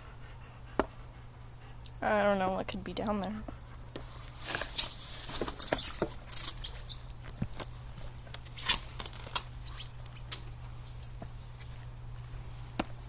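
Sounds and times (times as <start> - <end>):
rustling and crackling with snaps: 2.7 - 13.0.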